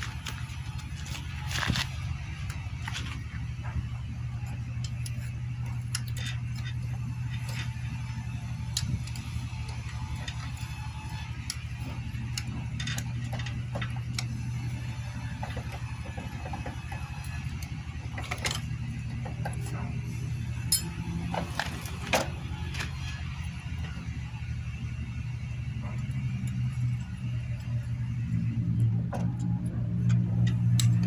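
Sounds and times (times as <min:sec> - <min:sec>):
steady low hum: 0:00.0 - 0:31.0
metal hand tools clinking: 0:20.7 - 0:21.0.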